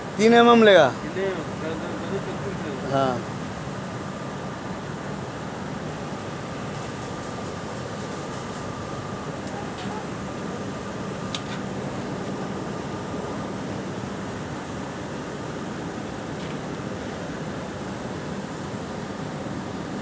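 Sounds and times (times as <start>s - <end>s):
machinery hum: 0.0s - 20.0s.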